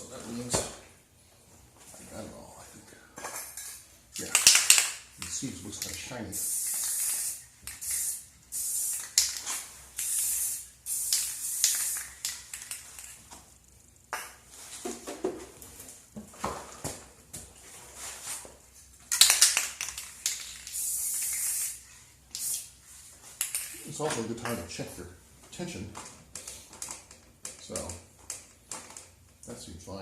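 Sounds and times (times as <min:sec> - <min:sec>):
aerosol spray hissing: 0:06.3 - 0:12.4, 0:20.7 - 0:22.7.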